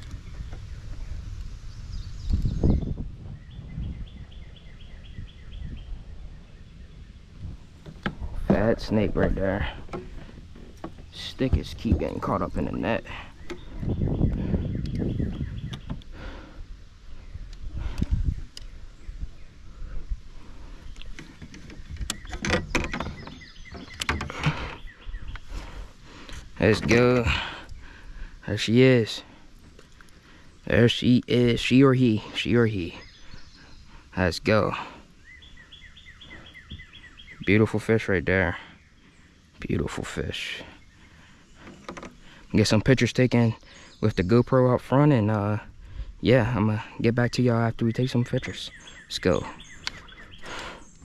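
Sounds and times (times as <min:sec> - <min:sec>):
bird calling: 0:00.0 - 0:51.0
low rumble of wind: 0:00.0 - 0:51.0
dull thumps: 0:07.8 - 0:12.8
fishing gear knocking and rattling: 0:07.8 - 0:12.8, 0:21.0 - 0:24.8, 0:41.6 - 0:42.2.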